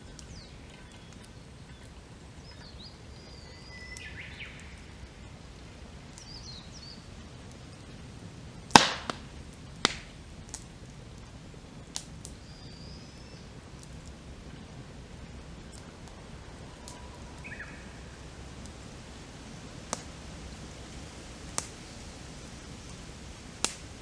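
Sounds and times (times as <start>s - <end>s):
low steady background noise: 0.0s - 24.0s
wood fire crackling and popping: 0.0s - 24.0s
bird chirps: 0.2s - 4.9s, 16.9s - 18.1s.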